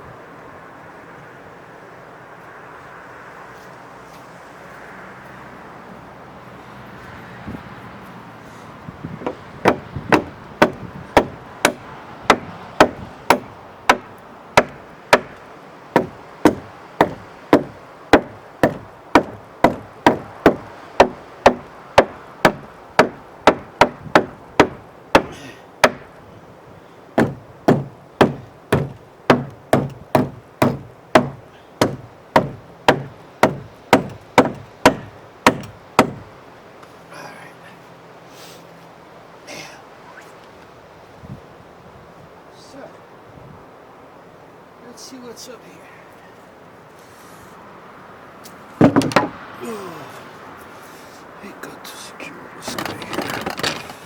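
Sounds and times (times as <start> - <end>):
hammer striking wood: 9.2 - 26.2, 27.2 - 36.3, 48.8 - 49.4, 52.8 - 53.9.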